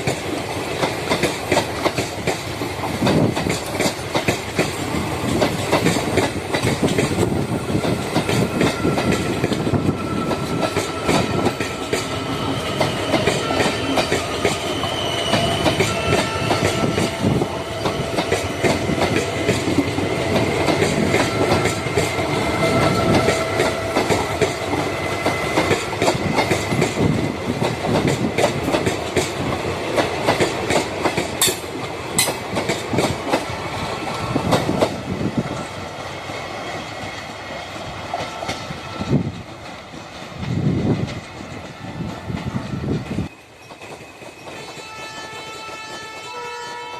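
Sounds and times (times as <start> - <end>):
train wheels clattering on rails: 0.0 - 46.9.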